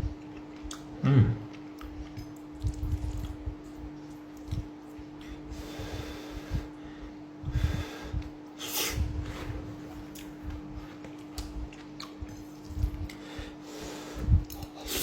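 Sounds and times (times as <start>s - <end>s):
person eating: 0.0s - 6.8s, 8.0s - 15.0s
steady low hum: 0.0s - 15.0s
breathing through the nose: 5.5s - 9.7s, 13.1s - 15.0s.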